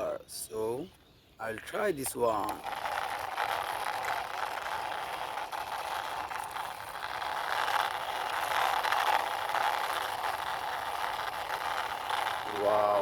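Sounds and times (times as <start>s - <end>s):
toy truck wheels rolling: 1.6s - 13.0s.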